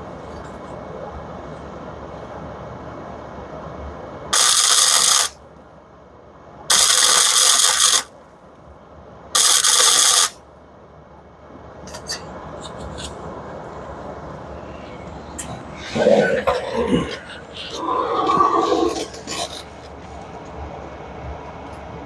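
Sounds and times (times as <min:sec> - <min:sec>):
welder tack welding: 0:04.4 - 0:05.4, 0:06.7 - 0:08.1, 0:09.4 - 0:10.4.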